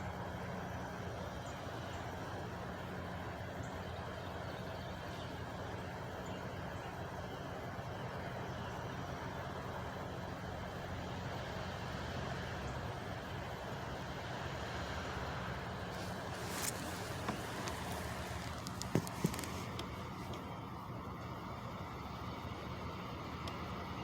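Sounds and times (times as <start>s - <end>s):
truck engine idling: 12.9s - 22.4s.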